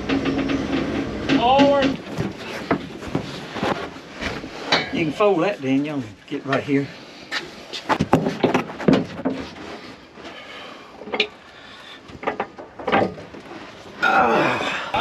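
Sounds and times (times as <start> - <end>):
metal clanks and knocks: 0.0 - 5.3, 7.9 - 9.6, 11.0 - 11.4, 12.1 - 13.5.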